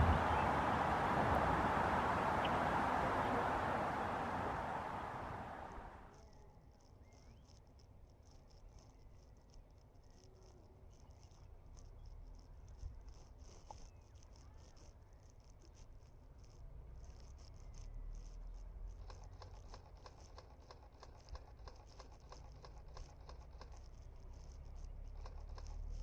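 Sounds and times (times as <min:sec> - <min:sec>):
low steady rumble: 0:00.0 - 0:06.0.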